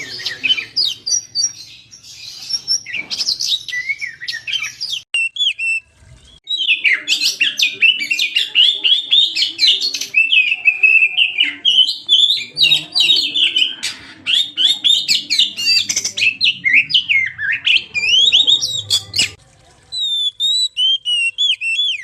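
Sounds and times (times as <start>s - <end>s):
bird singing whistled notes: 0.0s - 13.7s, 20.0s - 22.0s.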